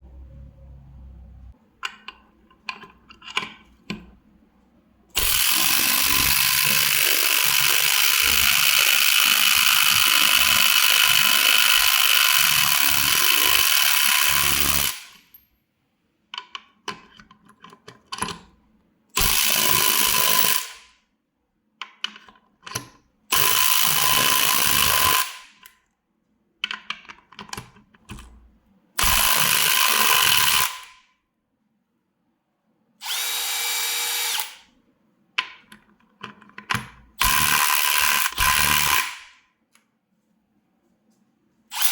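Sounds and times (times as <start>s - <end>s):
impact driver running: 33.0s - 34.6s, 37.2s - 39.3s.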